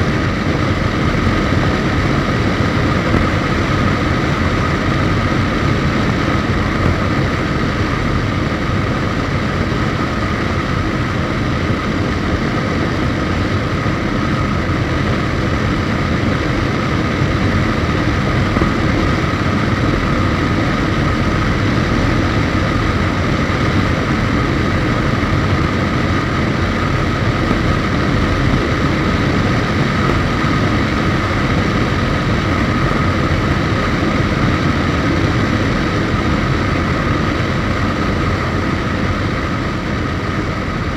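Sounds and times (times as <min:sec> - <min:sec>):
motorcycle engine cruising: 0:00.0 - 0:38.5.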